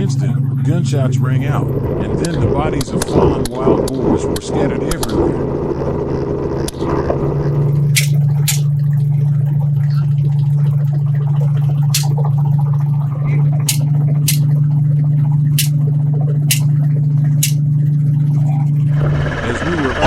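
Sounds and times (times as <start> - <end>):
helicopter drone: 18.9 - 20.0.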